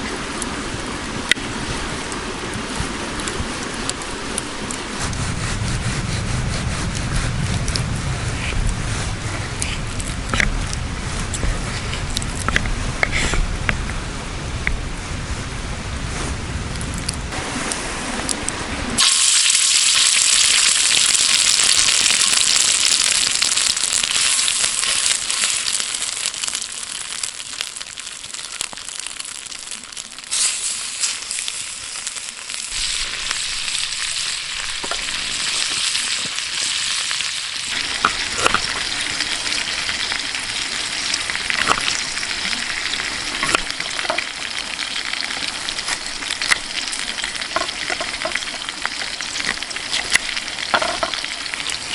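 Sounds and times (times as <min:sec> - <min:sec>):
food sizzling in a pan: 0:19.0 - 0:51.9
oil popping and crackling: 0:19.0 - 0:51.9.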